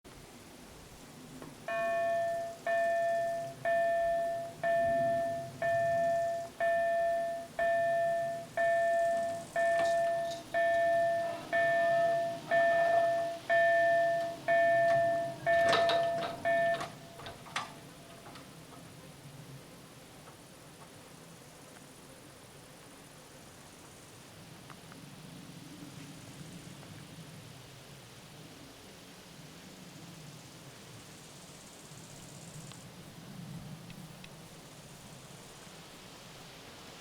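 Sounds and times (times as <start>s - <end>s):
level-crossing warning bell: 1.4s - 18.9s.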